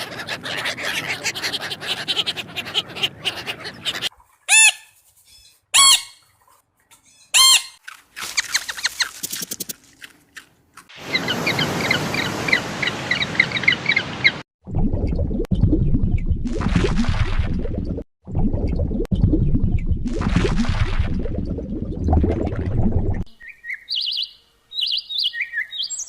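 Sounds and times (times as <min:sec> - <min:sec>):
animal chattering: 0:00.0 - 0:04.1
rising and falling animal calls: 0:00.0 - 0:06.1.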